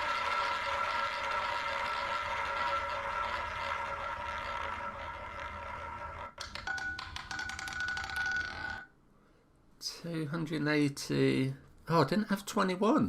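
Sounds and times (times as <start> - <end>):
roulette ball whirring around wheel: 0.0 - 8.9.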